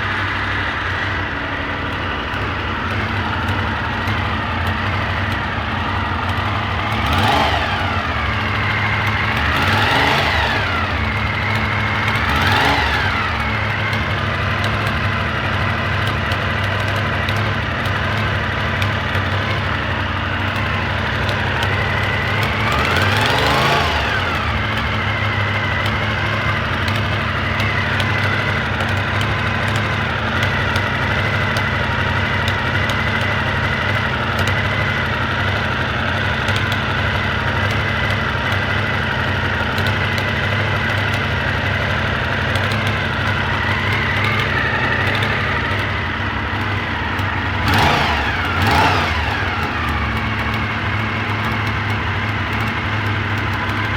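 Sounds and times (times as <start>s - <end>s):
engine revving: 0.0s - 53.9s
motorcycle engine idling: 0.0s - 53.9s.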